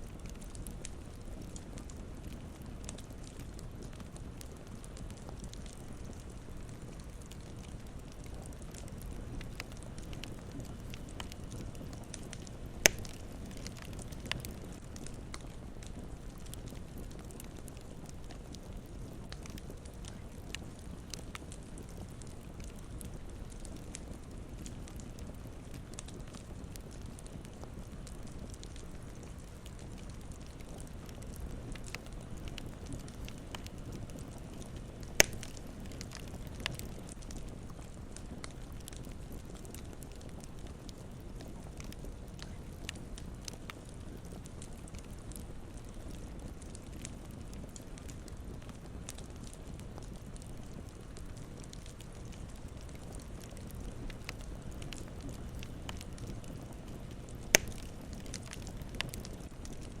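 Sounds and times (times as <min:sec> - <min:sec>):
campfire crackling: 0:00.0 - 1:00.0
loud pop from burning wood: 0:12.4 - 0:14.5, 0:35.0 - 0:36.8, 0:57.5 - 0:59.2
sharp pop from fire: 0:12.8 - 0:13.2, 0:35.2 - 0:35.6, 0:57.5 - 0:57.9.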